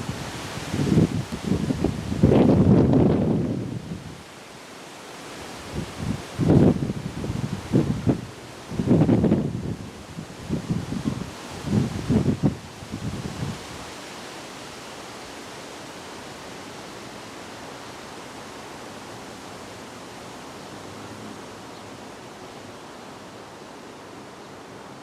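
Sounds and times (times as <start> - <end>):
wind buffeting microphone: 0.0 - 4.2, 5.7 - 13.8
steady rushing wind: 0.0 - 25.0.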